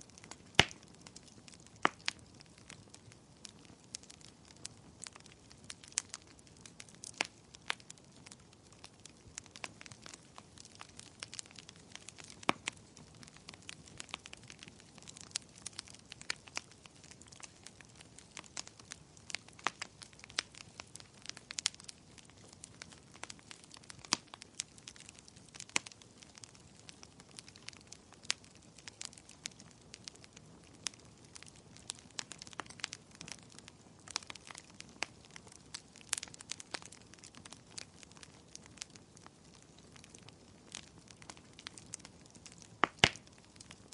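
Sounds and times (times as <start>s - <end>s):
faint rain hiss: 0.0s - 2.5s
wood fire crackling: 0.0s - 43.9s.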